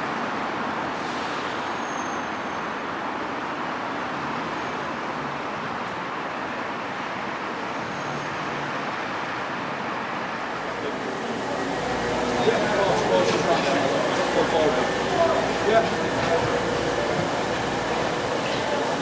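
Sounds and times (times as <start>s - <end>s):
train rushing noise: 10.0s - 19.0s.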